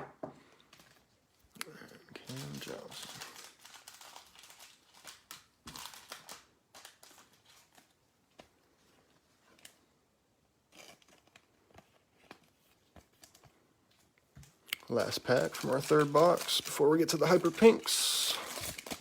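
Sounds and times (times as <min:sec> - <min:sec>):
trading cards crinkling: 0:02.2 - 0:08.0, 0:10.8 - 0:19.0.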